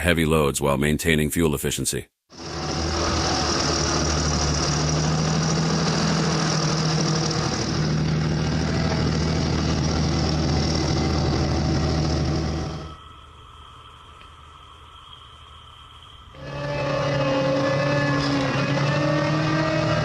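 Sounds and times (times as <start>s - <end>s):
tractor diesel engine running: 2.4s - 13.0s.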